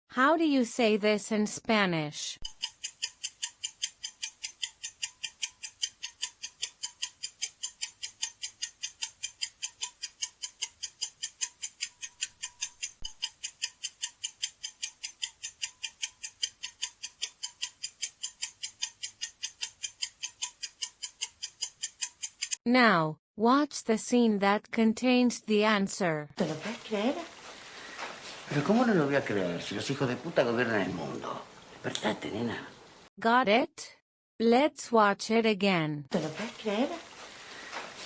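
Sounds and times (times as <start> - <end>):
clock ticking: 2.4 - 22.6, 26.4 - 29.3, 36.1 - 38.0.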